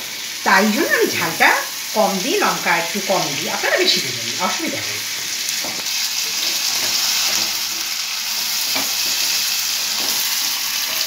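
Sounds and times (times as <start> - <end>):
meat sizzling in a pan: 0.0 - 11.0
spatula scraping a pan: 5.2 - 11.0.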